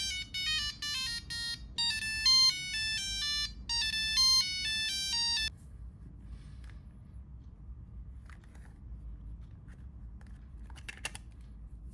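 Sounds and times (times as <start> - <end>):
monophonic phone ringtone melody: 0.0 - 5.5.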